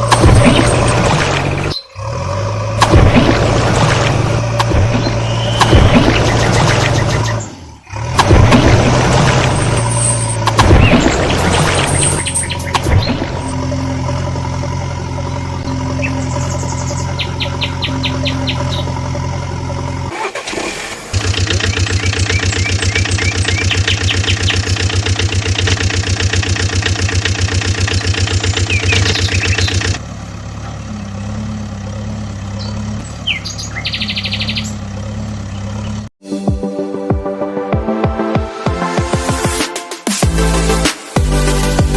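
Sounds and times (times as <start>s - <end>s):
rapidly pulsing engine: 0.0s - 36.1s
vehicle engines running: 0.0s - 36.2s
birds chirping: 0.1s - 2.1s, 4.5s - 8.0s, 9.7s - 20.0s, 21.3s - 25.9s, 27.5s - 36.1s.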